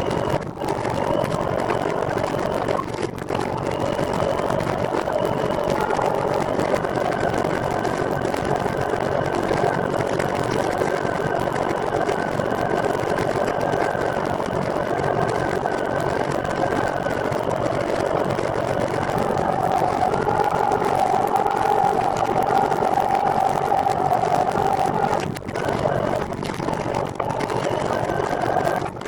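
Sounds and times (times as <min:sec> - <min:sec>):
faint steady whine: 0:00.0 - 0:29.0
trike mechanical hum: 0:00.0 - 0:29.0.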